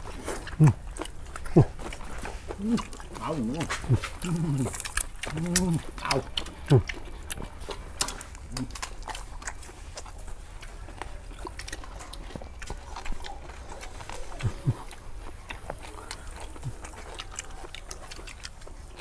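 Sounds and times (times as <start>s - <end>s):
people chewing and lip smacking: 0.0s - 19.0s
low grunts: 1.4s - 1.8s, 2.5s - 6.9s.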